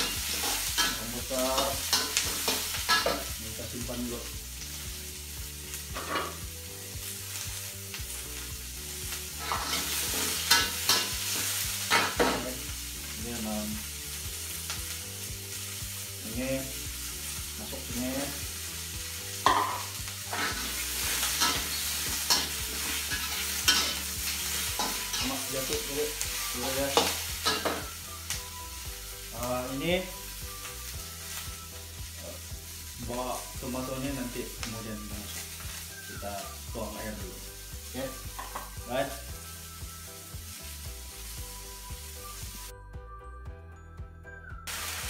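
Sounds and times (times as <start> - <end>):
food sizzling in oil: 0.0 - 42.7, 44.6 - 45.0
metal spatula scraping a wok: 5.9 - 6.4, 9.3 - 12.3, 19.4 - 25.4.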